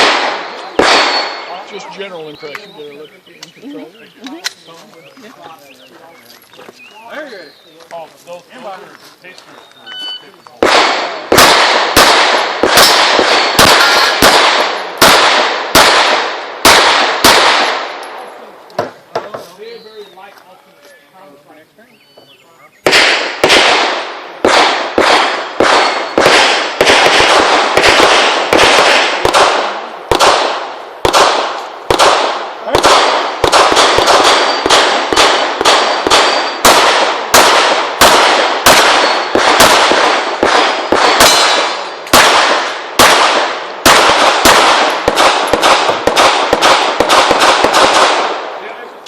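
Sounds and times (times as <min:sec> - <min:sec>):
pistol shots with echo: 0:00.0 - 0:01.8, 0:10.6 - 0:18.2, 0:22.8 - 0:48.8.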